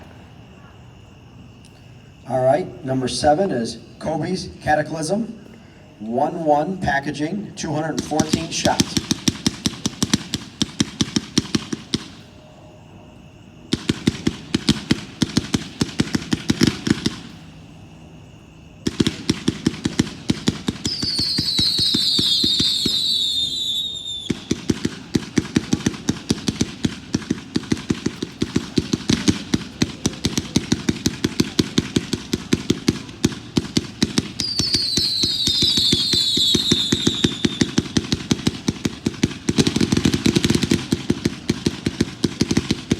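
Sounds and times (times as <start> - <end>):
firework cake rapid shots: 7.7 - 12.4, 13.7 - 17.6, 18.8 - 42.9
falling firework whistle: 18.9 - 40.9.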